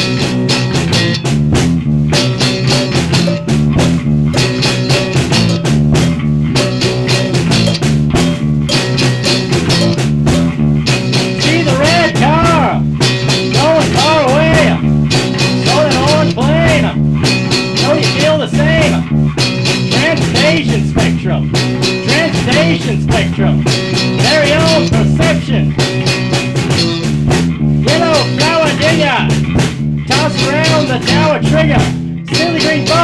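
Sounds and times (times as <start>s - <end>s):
lead guitar bending notes: 0.0s - 20.7s
rock band playing: 0.0s - 33.0s.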